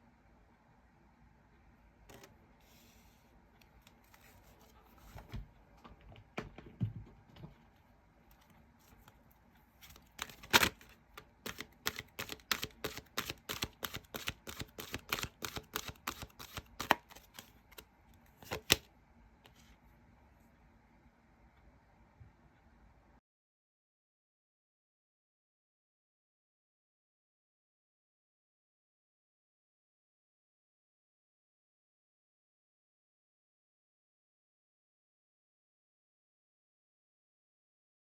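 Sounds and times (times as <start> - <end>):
cards being shuffled: 9.8 - 18.9.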